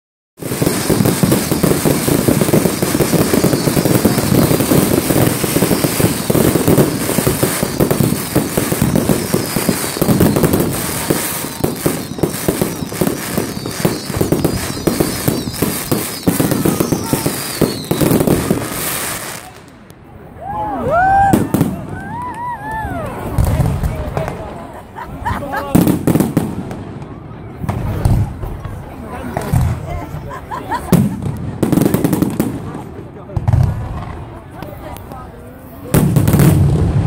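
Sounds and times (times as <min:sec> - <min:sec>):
faint high firework whistles: 0:00.4 - 0:19.6
fireworks bangs and crackling: 0:00.4 - 0:20.2, 0:20.9 - 0:37.0.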